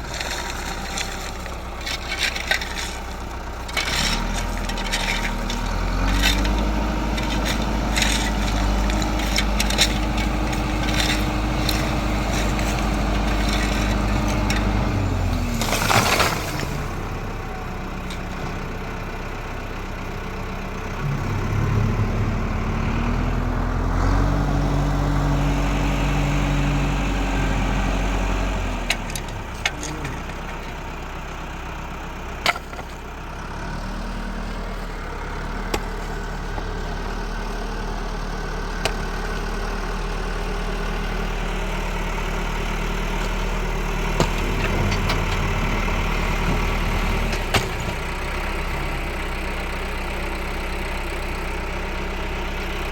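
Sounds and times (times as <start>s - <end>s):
tractor engine revving: 0.0s - 52.9s.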